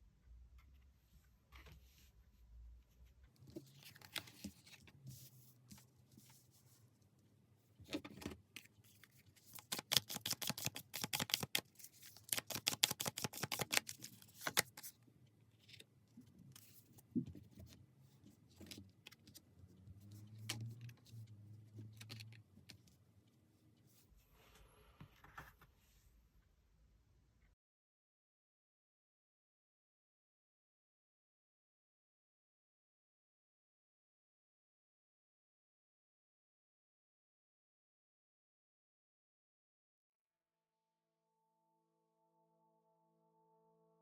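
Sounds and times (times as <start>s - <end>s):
cards being shuffled: 3.6s - 4.9s, 7.9s - 14.9s.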